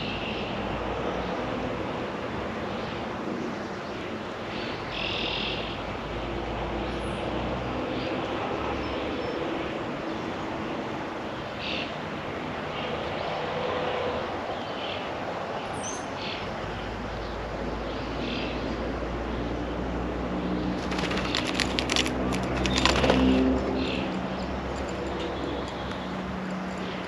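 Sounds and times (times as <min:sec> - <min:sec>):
distant road traffic hiss: 0:00.0 - 0:27.0
songbirds chirping: 0:14.4 - 0:27.0.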